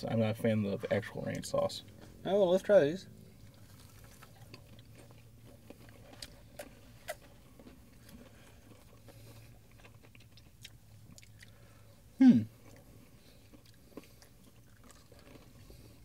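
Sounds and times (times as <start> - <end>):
faint low hum: 0.0 - 16.0
people chewing: 3.3 - 16.0.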